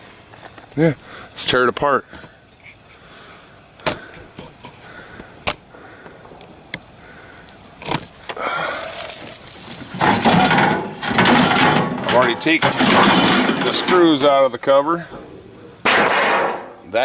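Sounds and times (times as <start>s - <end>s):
metallic rattling and scraping: 8.0s - 17.0s.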